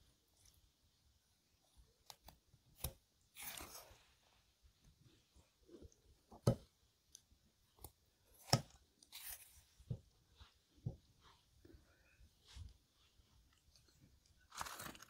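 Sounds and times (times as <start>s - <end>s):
person chewing food: 13.4s - 15.0s.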